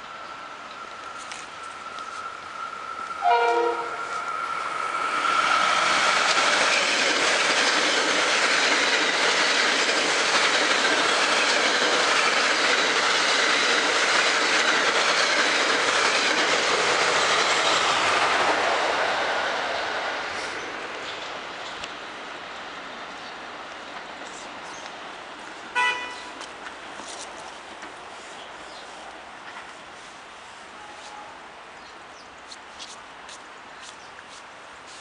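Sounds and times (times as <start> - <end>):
train wheels rushing on rail: 0.0 - 31.5
train horn blast: 3.2 - 4.2, 25.7 - 26.3, 30.8 - 31.4.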